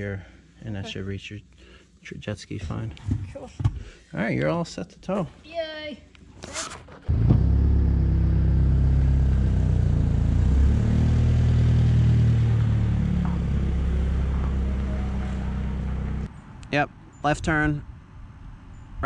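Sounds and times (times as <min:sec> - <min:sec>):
car engine pulling away: 0:07.0 - 0:16.3.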